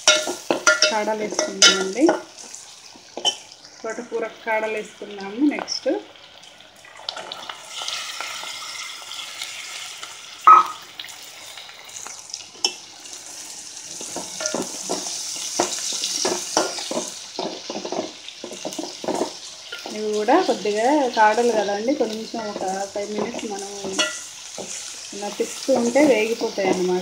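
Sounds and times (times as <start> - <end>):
vegetables sizzling in hot oil: 0.0 - 27.0
spoon scraping against pot: 22.4 - 24.9.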